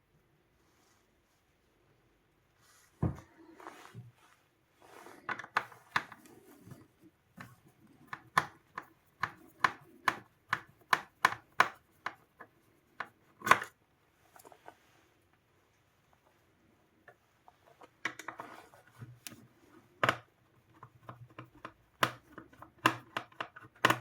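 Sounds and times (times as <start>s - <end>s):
sharp clicks and taps: 7.4s - 13.7s.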